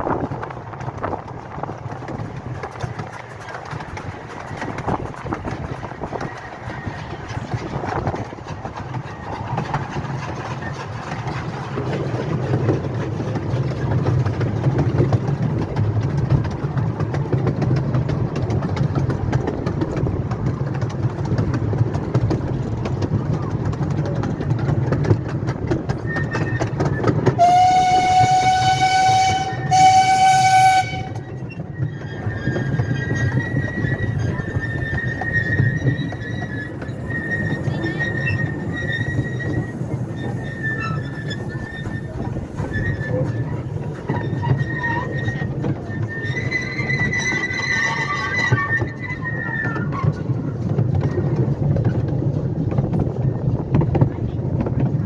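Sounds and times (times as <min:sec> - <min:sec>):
train rumbling on track: 0:00.0 - 0:55.0
wheels clicking over rails: 0:00.0 - 0:55.0
locomotive whistle: 0:26.0 - 0:50.2.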